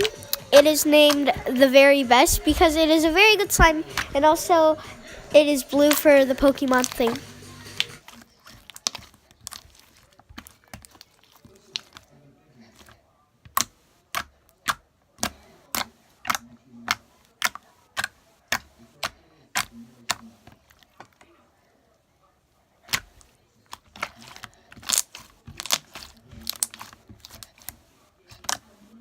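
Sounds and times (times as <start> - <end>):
slime clicking and popping: 22.9 - 27.7.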